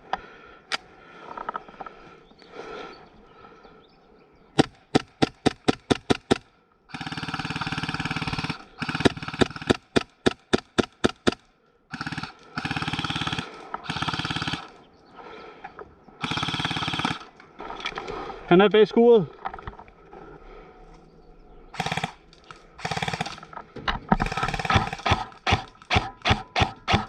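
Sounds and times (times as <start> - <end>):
airsoft gun full-auto bursts: 4.6 - 14.8, 16.2 - 17.3, 21.8 - 22.2, 22.8 - 23.5, 24.2 - 27.0
airsoft gun single shots: 24.2 - 27.0.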